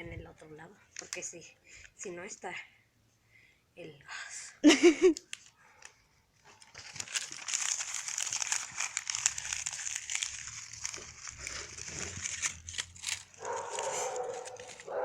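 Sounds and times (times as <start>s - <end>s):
dry leaves and paper crinkling: 5.3s - 15.0s.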